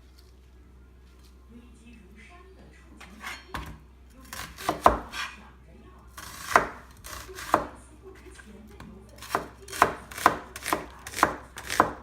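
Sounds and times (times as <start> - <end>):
knife chopping on cutting board: 3.0 - 5.4, 6.2 - 7.8, 8.8 - 12.0.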